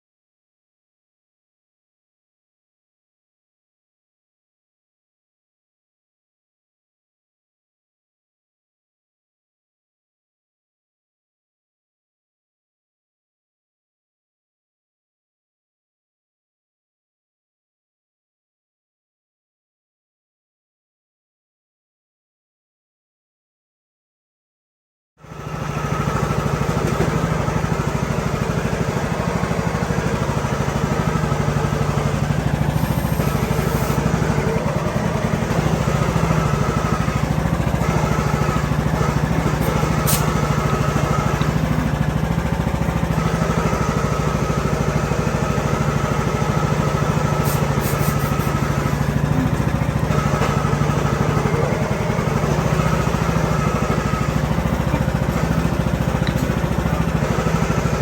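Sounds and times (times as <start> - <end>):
riding mower engine running: 25.2 - 58.0.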